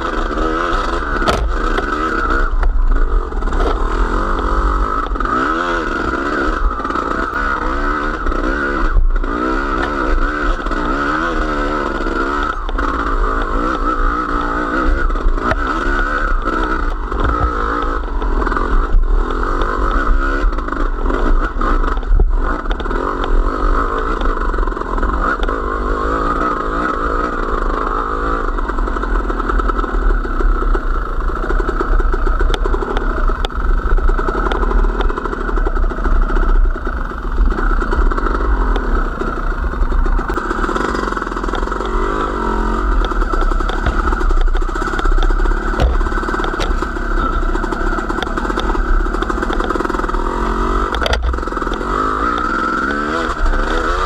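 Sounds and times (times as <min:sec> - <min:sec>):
vehicle engine running: 0:00.0 - 0:54.0
knocks and rattles: 0:43.0 - 0:50.1.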